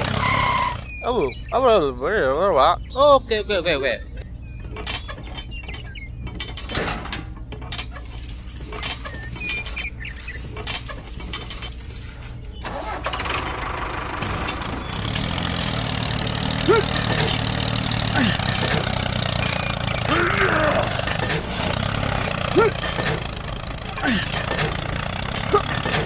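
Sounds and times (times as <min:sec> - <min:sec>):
clicks and rattles: 0:04.6 - 0:26.0.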